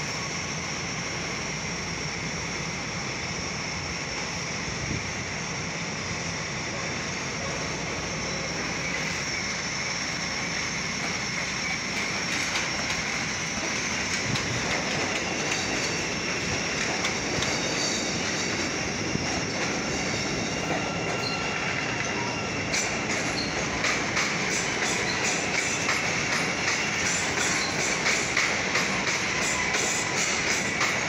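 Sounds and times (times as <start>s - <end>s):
rail cars rolling rumble: 0.0s - 31.0s
wheel squeal on track: 15.3s - 28.2s, 28.8s - 31.0s.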